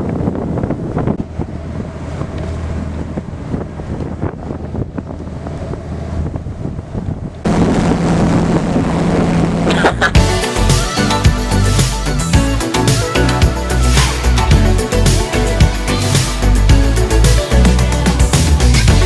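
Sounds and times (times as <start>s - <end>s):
wind buffeting microphone: 0.0s - 10.0s
steady low hum: 7.5s - 10.4s.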